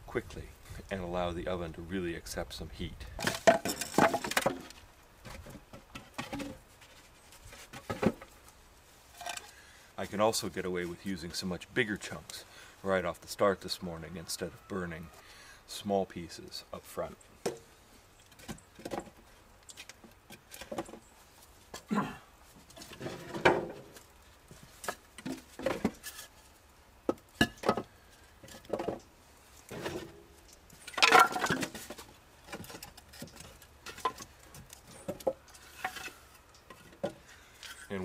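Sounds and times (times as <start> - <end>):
firewood knocking and clunking: 3.1 - 6.9, 22.6 - 26.2, 27.0 - 29.1, 29.7 - 37.2
wood scraping clatter: 3.1 - 8.4, 22.6 - 26.5, 27.6 - 38.0.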